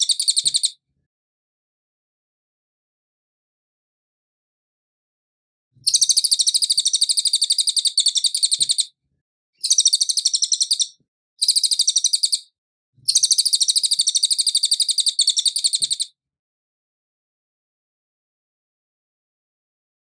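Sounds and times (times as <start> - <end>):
bird singing high trills: 9.6 - 12.4.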